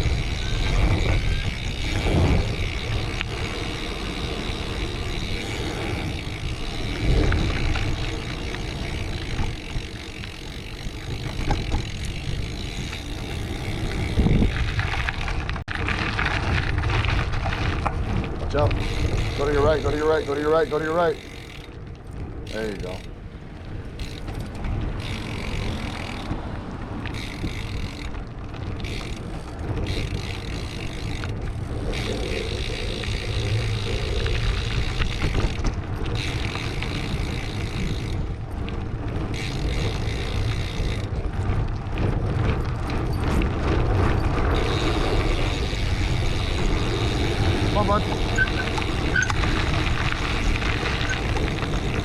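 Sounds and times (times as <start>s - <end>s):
bike road noise: 0.0s - 52.0s
wind noise: 0.0s - 52.0s.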